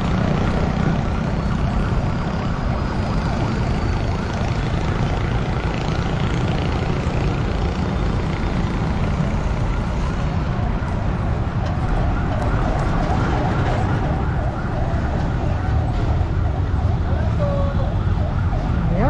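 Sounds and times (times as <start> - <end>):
motorcycle engines running: 0.0 - 19.0
road and wind noise: 0.0 - 19.0.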